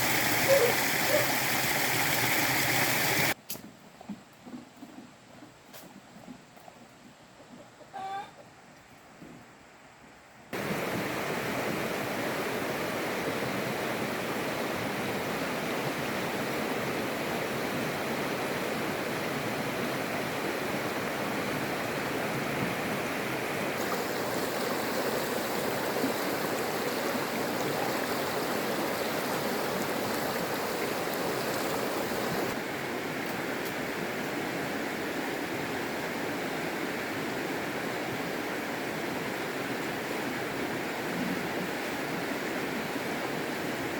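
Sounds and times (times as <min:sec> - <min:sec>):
flowing water rushing: 0:00.0 - 0:03.4, 0:10.6 - 0:32.7.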